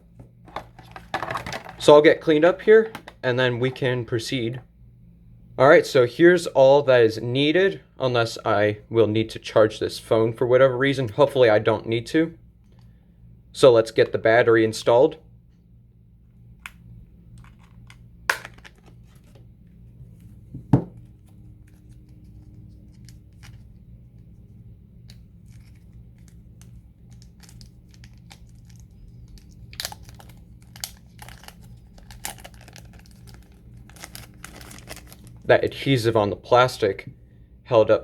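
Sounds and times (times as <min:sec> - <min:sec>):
faint low hum: 0:00.0 - 0:38.0
small clicks and crinkling: 0:25.0 - 0:35.4
plastic film peeling: 0:25.1 - 0:35.5.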